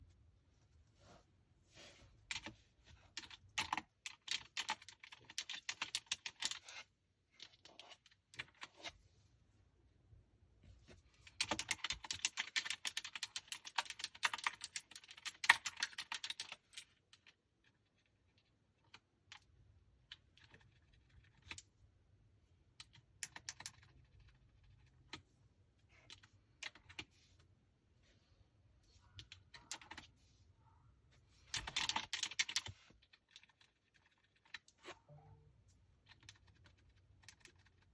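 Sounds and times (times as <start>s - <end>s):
mechanical keyboard typing: 3.1s - 6.6s, 11.3s - 17.0s, 22.8s - 25.0s, 29.2s - 30.1s, 31.4s - 34.6s, 36.0s - 37.9s.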